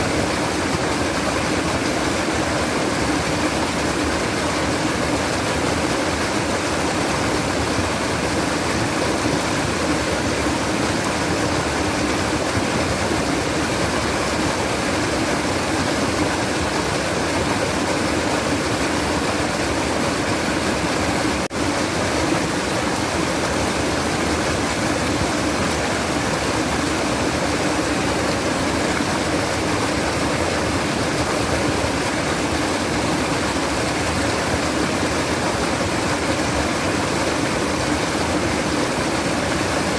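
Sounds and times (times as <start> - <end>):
babbling stream water: 0.0 - 39.9.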